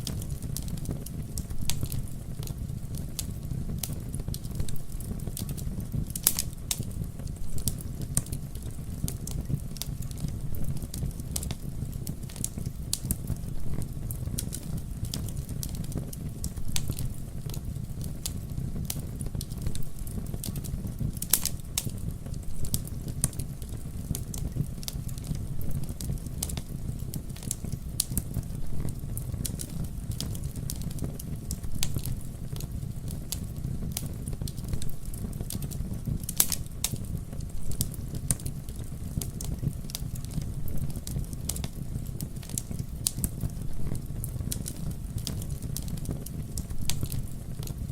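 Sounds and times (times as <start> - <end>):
wood fire crackling and popping: 0.0 - 47.9.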